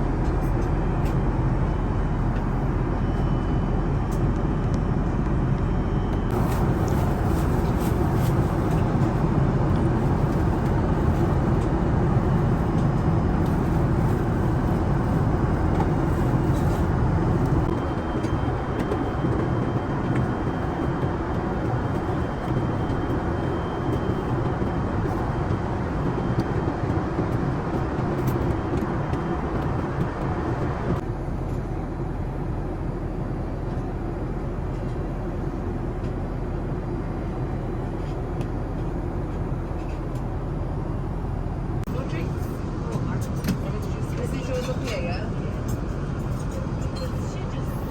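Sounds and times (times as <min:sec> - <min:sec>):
low hum: 0:00.0 - 0:33.2
jet airliner cabin noise: 0:00.0 - 0:47.9.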